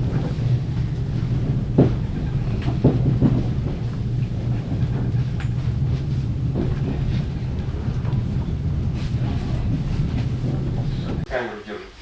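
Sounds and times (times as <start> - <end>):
train rumbling: 0.0 - 11.4.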